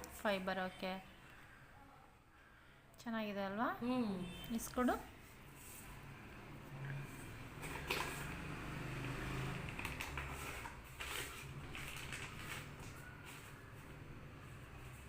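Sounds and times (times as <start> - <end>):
packaging rustling: 9.6 - 13.6.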